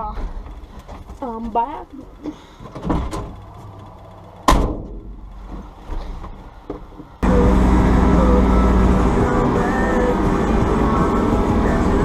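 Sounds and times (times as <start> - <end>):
vehicle door slamming: 4.4 - 6.1
loud music: 7.2 - 12.0.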